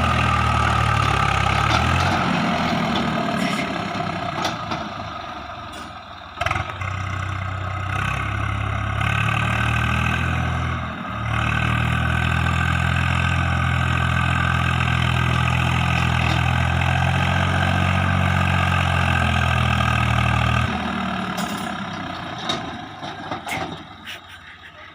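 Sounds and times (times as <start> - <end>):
heavy diesel engine running: 0.0 - 24.9.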